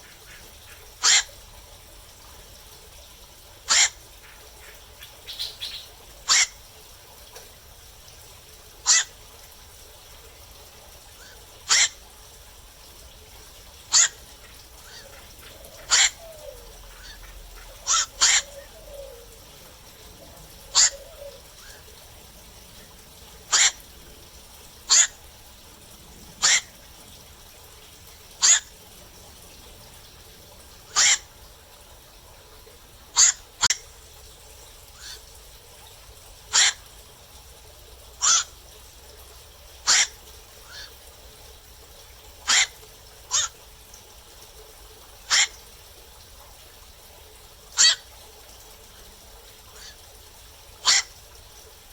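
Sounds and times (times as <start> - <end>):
heron calling: 0.0 - 1.3, 3.7 - 6.6, 11.2 - 12.0, 13.9 - 25.3, 26.3 - 26.9, 28.3 - 29.0, 30.8 - 31.4, 33.1 - 33.9, 36.5 - 36.8, 38.2 - 38.5, 39.9 - 41.0, 42.5 - 43.6, 45.3 - 45.6, 47.8 - 48.1, 50.8 - 51.1.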